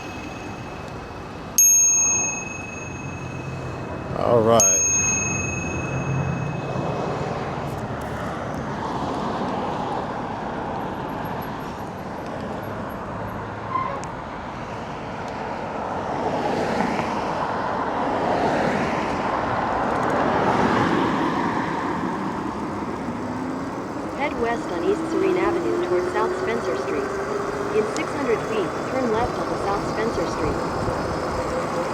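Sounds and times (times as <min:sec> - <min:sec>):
bicycle bell ringing: 0:00.0 - 0:07.4
street traffic: 0:00.0 - 0:31.9.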